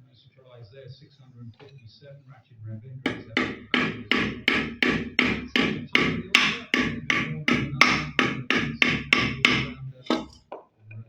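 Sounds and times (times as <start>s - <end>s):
rapid sharp knocks: 3.1s - 10.4s.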